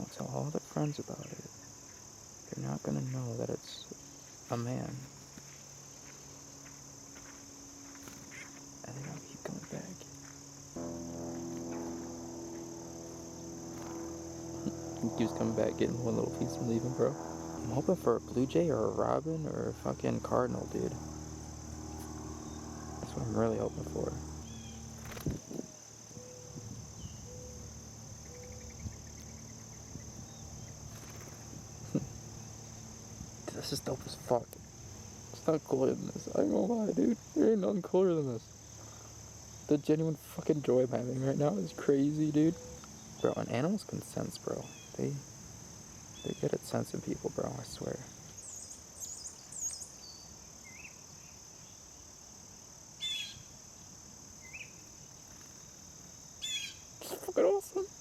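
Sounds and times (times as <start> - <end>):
insects trilling: 0.0 - 58.0
songbirds chirping: 0.0 - 58.0
faint bird chirps: 22.4 - 32.8, 41.6 - 43.6, 48.1 - 51.8, 53.0 - 53.5, 56.4 - 57.1
harsh buzzy bird call: 56.4 - 57.7.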